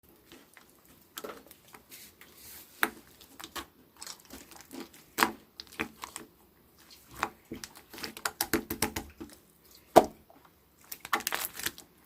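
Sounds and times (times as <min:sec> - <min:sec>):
slime squishing and popping: 0:02.8 - 0:10.2, 0:10.8 - 0:11.8.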